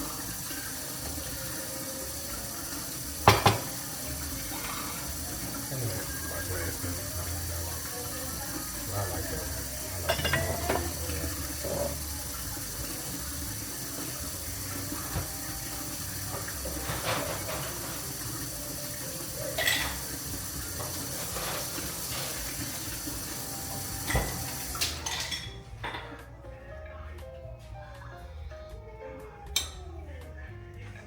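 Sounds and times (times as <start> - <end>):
running tap water: 0.0 - 26.0
dishes knocking and clinking: 3.2 - 4.0, 9.9 - 12.0, 14.8 - 18.2, 19.5 - 26.2.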